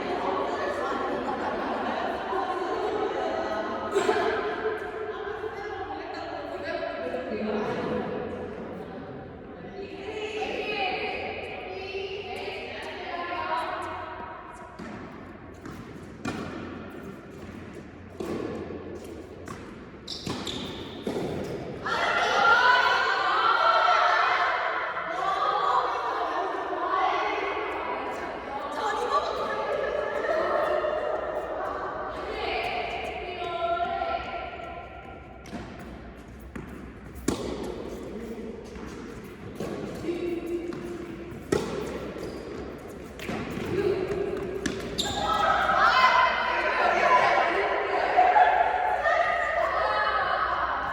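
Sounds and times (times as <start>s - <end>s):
ball bouncing on hard court: 14.6s - 21.8s, 34.2s - 46.1s
tennis ball hit by racket: 14.8s - 21.6s, 35.4s - 37.8s, 40.7s - 45.4s.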